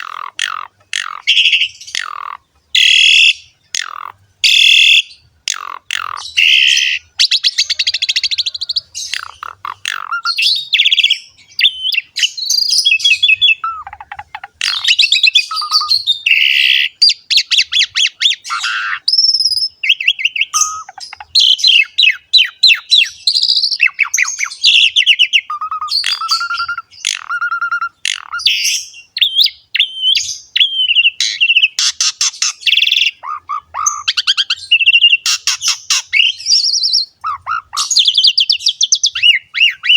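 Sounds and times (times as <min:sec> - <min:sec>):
starling singing chattering song: 0:00.0 - 0:39.9.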